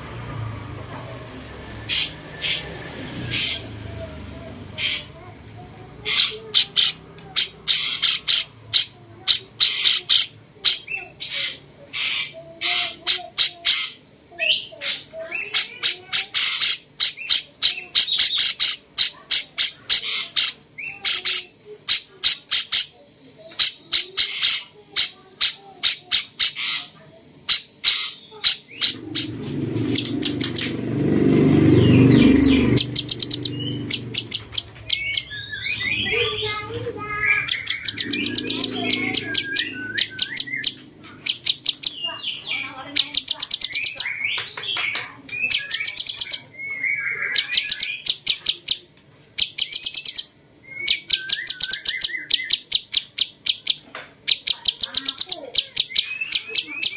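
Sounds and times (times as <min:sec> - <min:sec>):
bird singing sharp high notes: 0:27.7 - 0:44.5.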